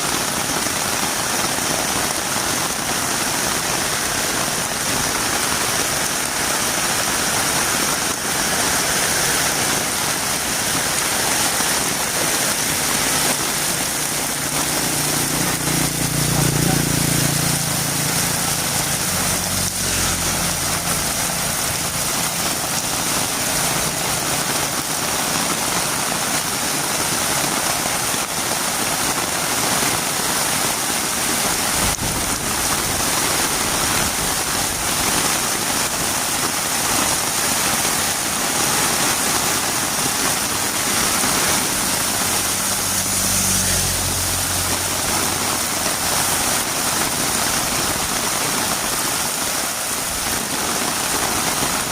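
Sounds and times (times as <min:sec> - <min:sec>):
heavy rain falling: 0:00.0 - 0:51.9
low engine hum: 0:13.1 - 0:24.8, 0:41.5 - 0:46.6.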